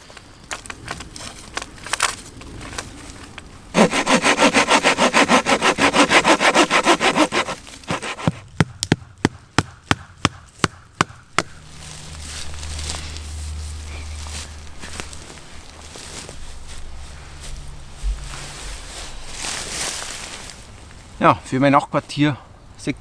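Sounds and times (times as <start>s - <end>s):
hand saw cutting wood: 3.8s - 8.5s
sharp knocks on wood: 7.0s - 11.5s.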